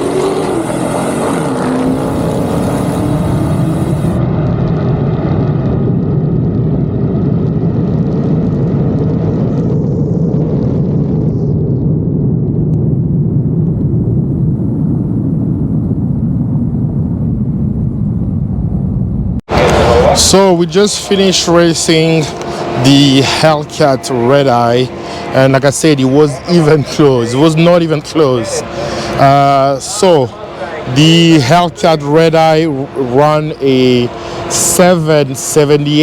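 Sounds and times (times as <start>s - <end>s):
car engines racing: 0.0s - 4.2s, 19.5s - 36.0s.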